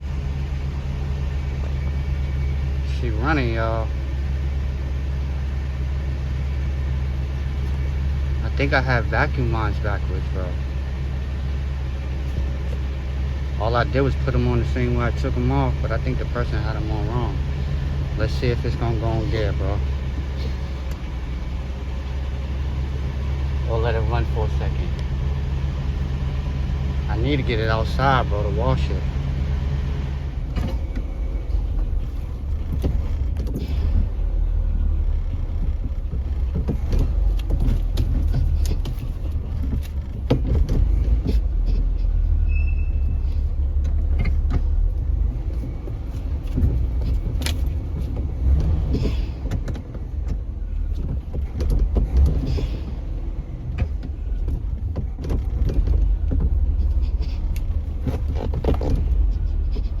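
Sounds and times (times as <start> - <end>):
car engine rumbling: 0.0 - 60.0.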